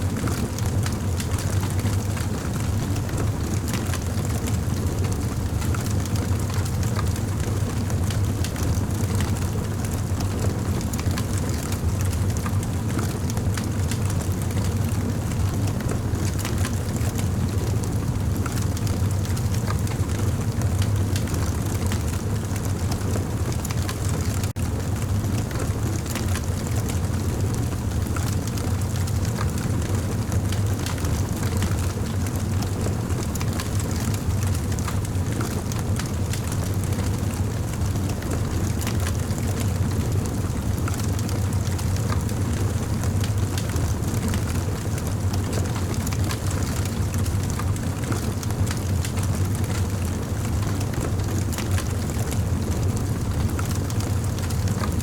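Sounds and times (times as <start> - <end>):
campfire flames rumbling: 0.0 - 55.0
fire crackling and popping: 3.0 - 55.0.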